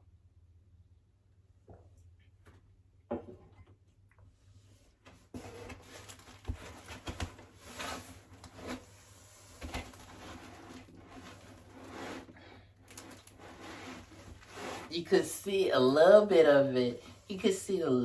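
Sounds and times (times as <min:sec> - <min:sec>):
packaging rustling: 0:05.4 - 0:14.9.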